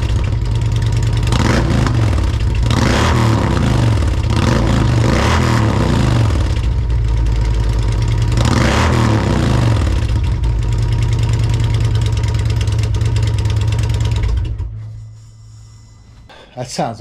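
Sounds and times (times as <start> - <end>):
motorcycle engine revving and idling: 0.0 - 15.3.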